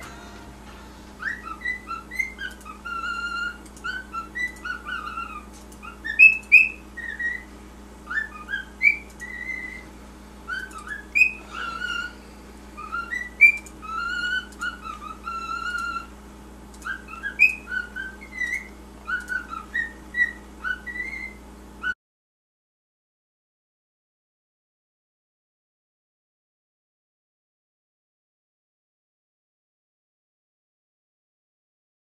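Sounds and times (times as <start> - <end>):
steady low hum: 0.0 - 22.0
cockatiel whistling: 1.2 - 9.9, 10.5 - 12.2, 12.8 - 16.1, 16.8 - 22.0.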